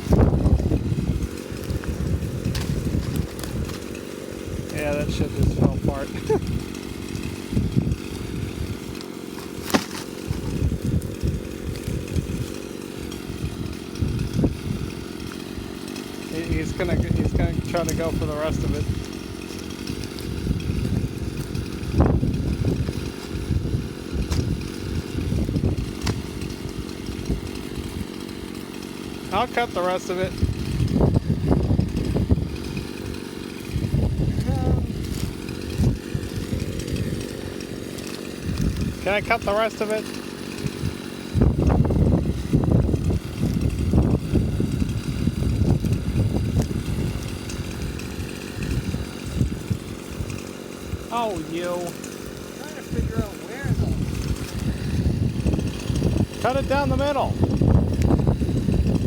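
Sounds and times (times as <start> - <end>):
wind buffeting microphone: 0.0 - 29.4, 30.2 - 39.5, 40.6 - 59.0
chainsaw cutting wood: 0.0 - 59.0.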